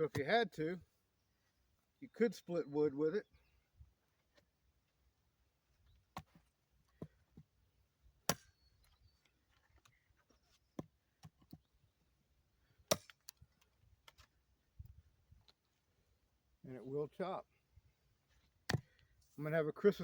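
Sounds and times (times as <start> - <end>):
blade chopping wood: 8.2 - 8.6, 12.9 - 13.3.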